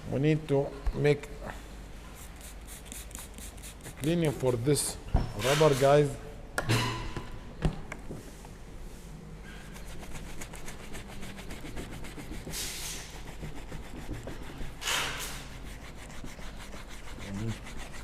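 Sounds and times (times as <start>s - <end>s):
brush scrubbing rubber seal: 9.7s - 18.0s.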